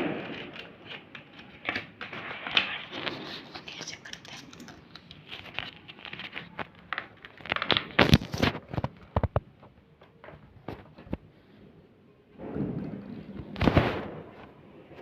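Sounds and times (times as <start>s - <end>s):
paper crinkling and rustling: 0.0s - 11.2s.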